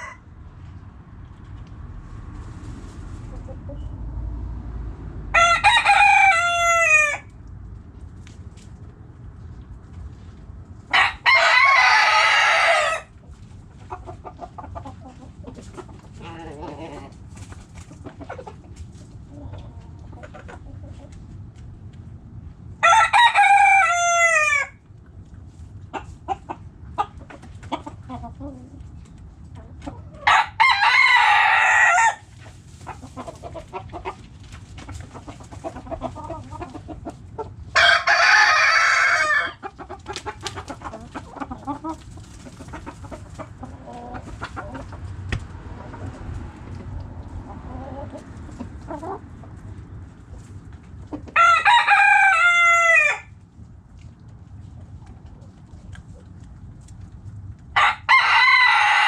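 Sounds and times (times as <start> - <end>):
roosters crowing: 0.0 - 0.4, 5.1 - 7.4, 10.8 - 13.2, 22.7 - 24.8, 29.9 - 34.2, 34.8 - 41.9, 51.1 - 53.4, 57.7 - 59.0
hens clucking: 2.9 - 4.1, 9.4 - 22.0, 25.0 - 53.2, 53.9 - 57.6.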